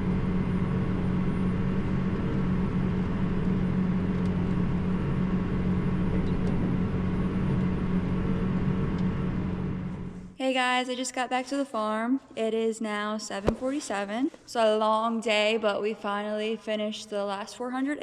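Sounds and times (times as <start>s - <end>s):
tractor diesel engine running: 0.0s - 10.4s.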